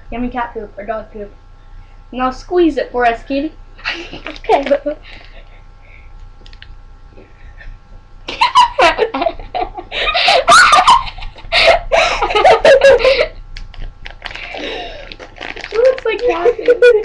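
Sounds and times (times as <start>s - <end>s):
people laughing: 8.3s - 13.3s, 16.2s - 17.0s
giggling: 8.3s - 13.4s, 15.8s - 17.0s.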